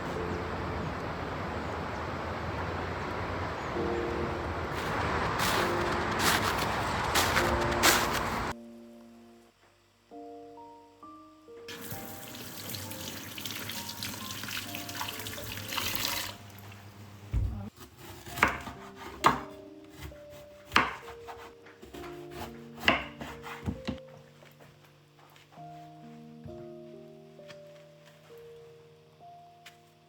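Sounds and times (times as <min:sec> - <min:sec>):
water tap running: 0:11.7 - 0:16.8.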